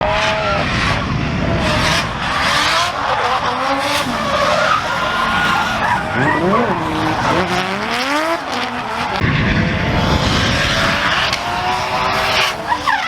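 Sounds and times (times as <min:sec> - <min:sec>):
car engines revving: 0:00.0 - 0:13.0
tyres squealing: 0:02.9 - 0:09.2.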